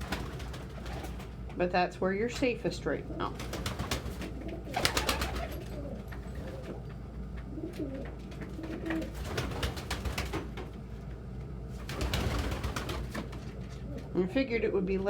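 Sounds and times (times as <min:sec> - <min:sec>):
pigeons cooing: 0:03.0 - 0:10.2.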